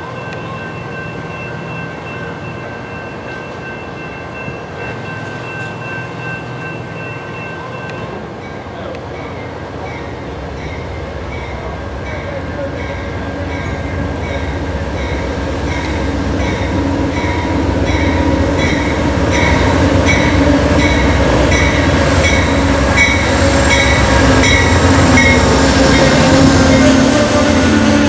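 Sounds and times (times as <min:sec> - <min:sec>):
train rumble: 0:00.0 - 0:28.0
train wheels clicking on rails: 0:00.2 - 0:28.0.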